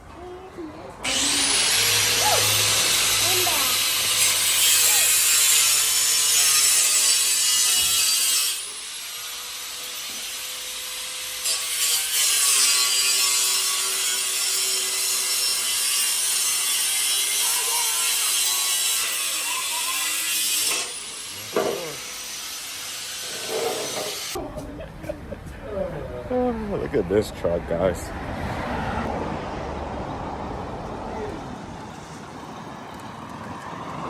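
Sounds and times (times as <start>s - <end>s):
power tool sawing metal: 1.0s - 24.4s.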